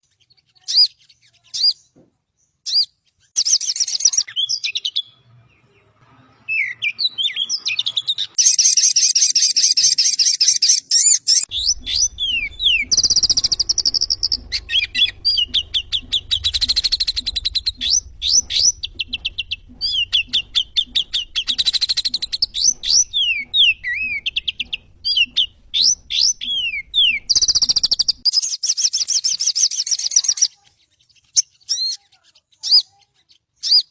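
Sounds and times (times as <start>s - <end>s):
bird chirping trills and whistles: 0.0s - 33.9s
low hum: 11.4s - 28.2s.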